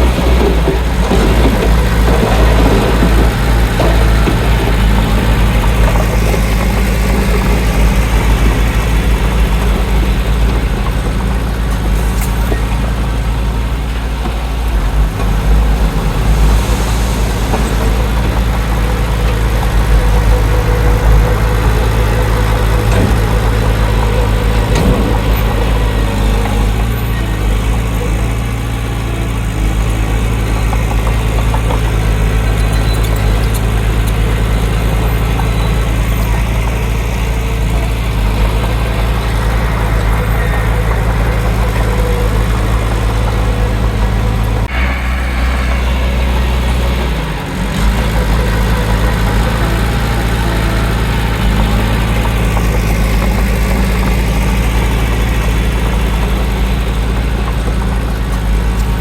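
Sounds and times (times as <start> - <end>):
diesel engine humming: 0.0 - 59.0.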